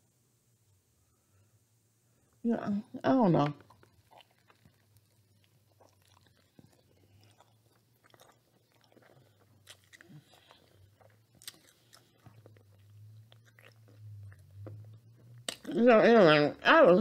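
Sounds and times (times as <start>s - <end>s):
faint chewing with crunches: 3.4s - 15.8s.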